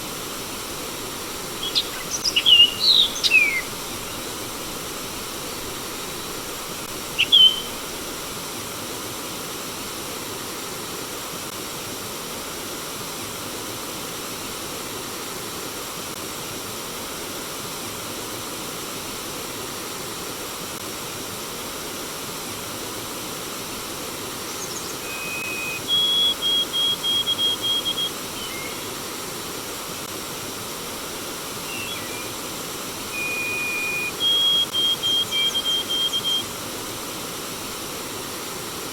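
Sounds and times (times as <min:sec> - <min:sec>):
bird calling: 0:00.0 - 0:08.3, 0:24.5 - 0:29.2, 0:31.6 - 0:36.7
running water: 0:00.0 - 0:09.0, 0:23.3 - 0:38.9.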